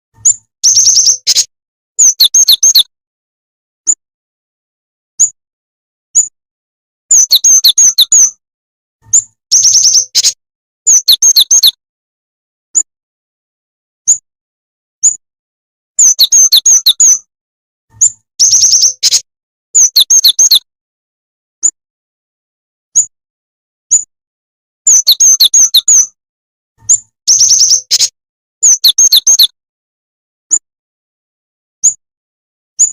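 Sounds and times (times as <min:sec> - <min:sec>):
bird chirping: 0:00.2 - 0:02.9, 0:05.2 - 0:05.4, 0:07.1 - 0:08.4, 0:09.1 - 0:11.8, 0:14.0 - 0:14.2, 0:16.0 - 0:17.3, 0:17.9 - 0:19.2, 0:19.8 - 0:20.7, 0:22.9 - 0:23.1, 0:24.9 - 0:26.2, 0:26.8 - 0:29.6.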